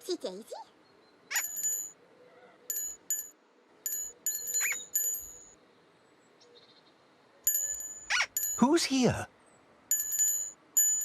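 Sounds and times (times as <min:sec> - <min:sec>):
small bell ringing: 0:01.3 - 0:02.0, 0:02.7 - 0:05.6, 0:07.5 - 0:08.9, 0:09.9 - 0:11.0.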